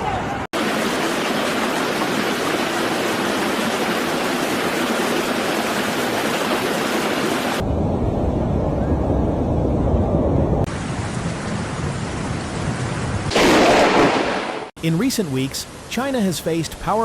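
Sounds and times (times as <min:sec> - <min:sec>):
heavy rain hissing: 0:10.7 - 0:17.0.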